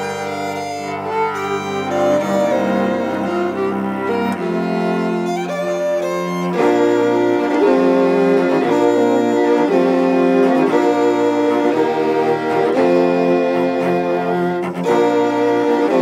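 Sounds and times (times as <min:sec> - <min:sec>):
string quartet sustained chords: 0:00.0 - 0:16.0.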